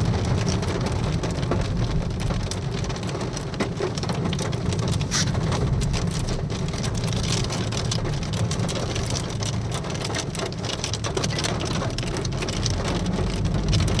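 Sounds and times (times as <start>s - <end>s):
hail ticking on a surface: 0.0s - 14.0s
heavy rain: 0.0s - 14.0s
low steady rumble: 0.0s - 14.0s.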